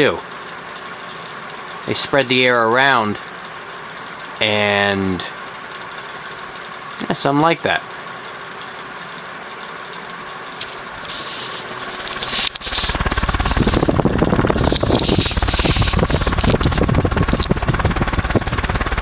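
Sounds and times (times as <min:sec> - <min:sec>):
ceiling fan running: 0:00.0 - 0:19.0
fan air buffeting microphone: 0:01.8 - 0:03.6, 0:10.2 - 0:19.0.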